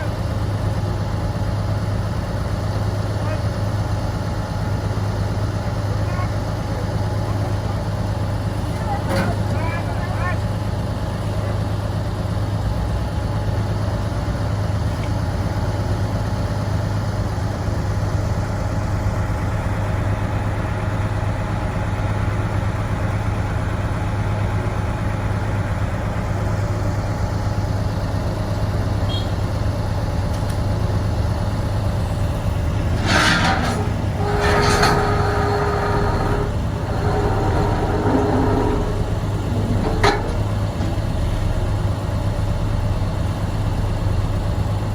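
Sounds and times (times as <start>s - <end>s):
diesel engine running: 0.0s - 44.9s
metallic clanks: 32.2s - 41.8s
short squeal: 32.7s - 40.7s.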